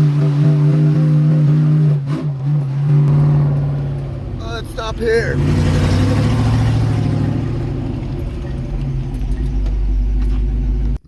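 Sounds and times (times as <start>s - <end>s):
vehicle engine idling: 2.3s - 11.0s.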